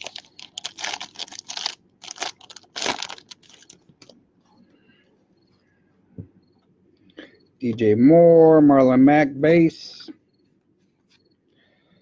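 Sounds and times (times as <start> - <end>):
plastic sleeves crinkling: 0.0 - 4.2.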